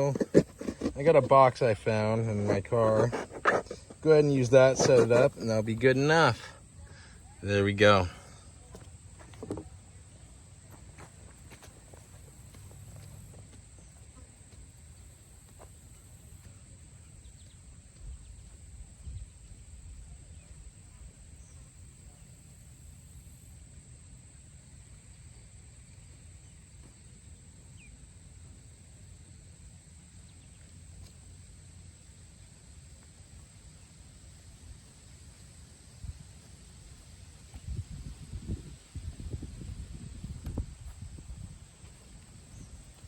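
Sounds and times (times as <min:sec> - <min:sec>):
insect drone: 0:00.0 - 0:43.0
low wind rumble: 0:36.0 - 0:43.0.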